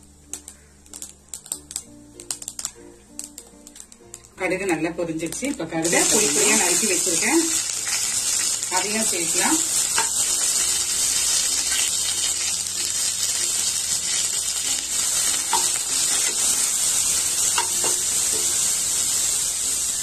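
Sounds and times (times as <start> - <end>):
vegetables sizzling in hot oil: 0.8 - 20.0
spatula stirring: 5.8 - 8.9, 9.6 - 18.6.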